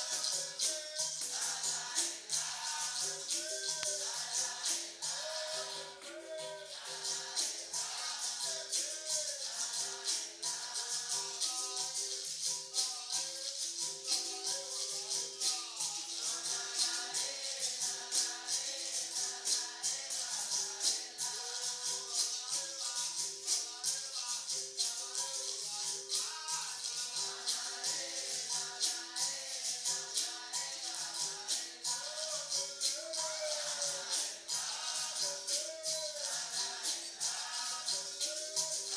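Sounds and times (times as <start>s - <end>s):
shakers rattling: 0.0s - 38.9s
tambourine jingles: 0.0s - 38.9s
voices singing: 0.0s - 38.9s.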